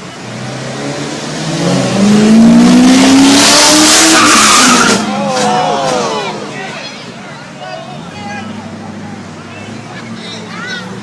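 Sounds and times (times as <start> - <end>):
car engine accelerating: 0.1 - 6.5.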